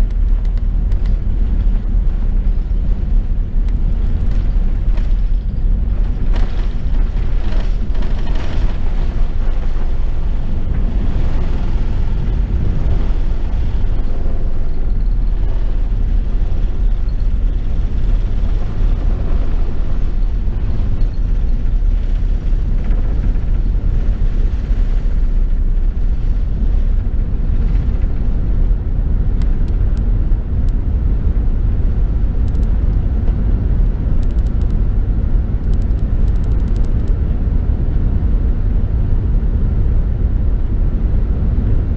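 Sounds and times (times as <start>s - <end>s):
aircraft cabin engine rumble: 0.0s - 41.9s
light clicks and rattles: 32.2s - 34.8s, 35.6s - 37.2s.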